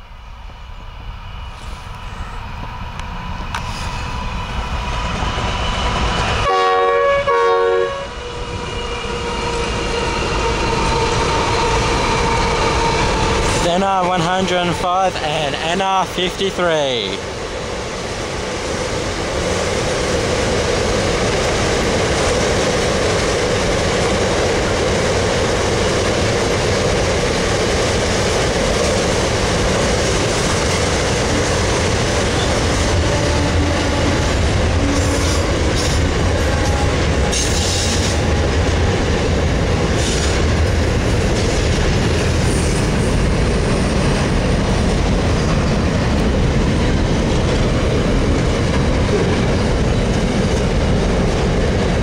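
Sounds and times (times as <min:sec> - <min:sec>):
train wheels rumbling on rails: 0:00.0 - 0:52.0
clickety-clack over rail joints: 0:19.1 - 0:52.0.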